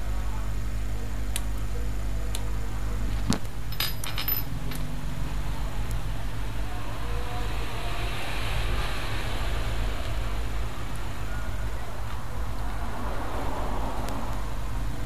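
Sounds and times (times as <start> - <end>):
steady low hum: 0.0 - 15.0
ringing metallic clinks: 3.7 - 4.5.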